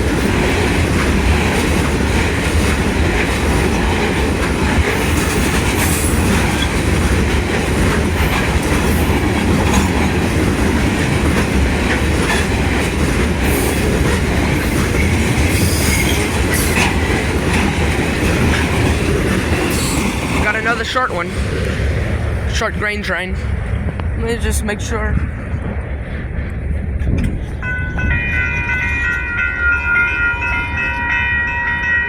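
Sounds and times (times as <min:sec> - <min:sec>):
wheels clicking over rail joints: 0:00.0 - 0:21.9
wheels squealing against rail: 0:15.0 - 0:16.9.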